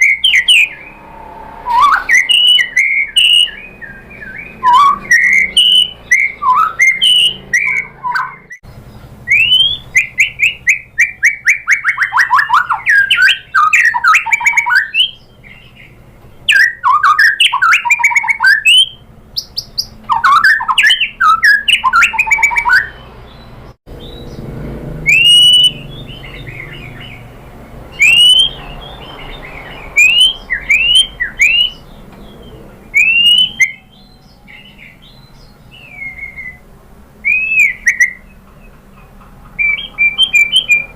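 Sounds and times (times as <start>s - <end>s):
songbird singing trills and whistles: 0.0s - 1.0s, 1.6s - 40.9s.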